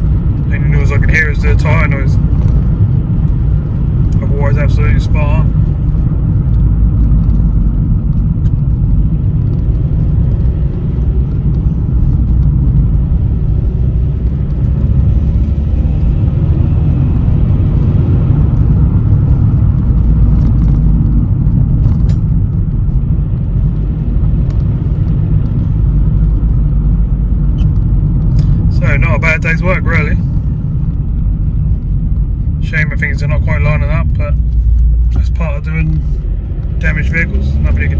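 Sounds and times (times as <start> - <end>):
road rumble and tyre noise: 0.0 - 37.9.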